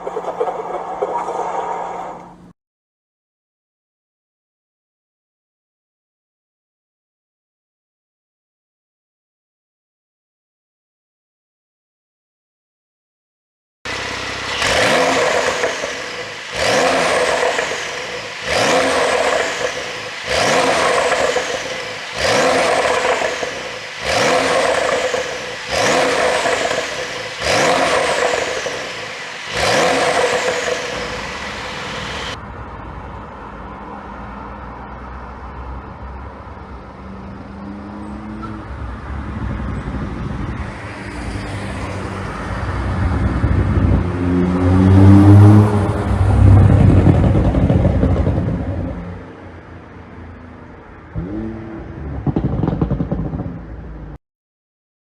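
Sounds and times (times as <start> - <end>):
car engine idling: 0.0 - 2.5, 13.9 - 32.4
car engine revving: 0.0 - 2.5, 13.9 - 32.4, 37.6 - 49.2, 51.1 - 54.1.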